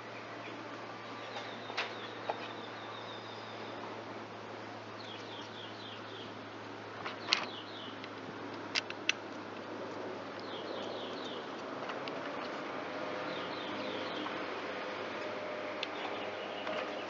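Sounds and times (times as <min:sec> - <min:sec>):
bird chirping: 0:00.0 - 0:03.8, 0:05.0 - 0:06.4, 0:07.1 - 0:08.0, 0:10.4 - 0:11.5, 0:13.2 - 0:14.6, 0:15.9 - 0:17.0
steady low hum: 0:00.0 - 0:17.0.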